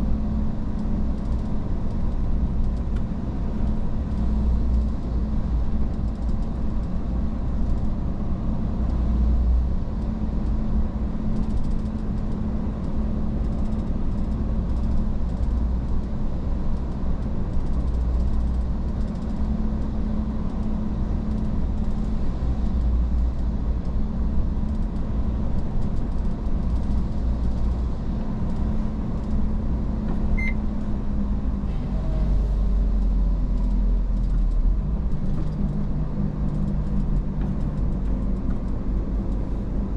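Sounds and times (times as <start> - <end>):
road rumble: 0.0 - 39.9
short high beep: 30.3 - 30.6.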